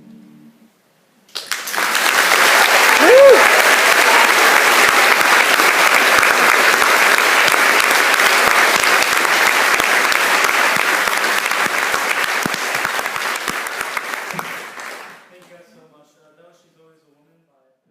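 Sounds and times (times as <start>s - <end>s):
audience applauding and cheering: 1.3s - 15.3s.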